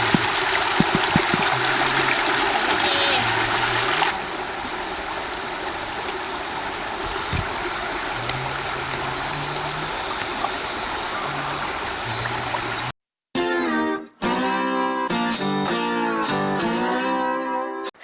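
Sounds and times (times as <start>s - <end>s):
stream water rushing: 0.0s - 12.9s
acoustic guitar music: 13.4s - 18.0s.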